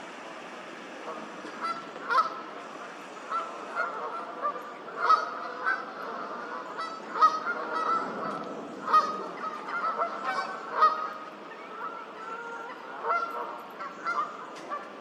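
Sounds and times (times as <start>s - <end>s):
geese honking: 1.0s - 15.0s.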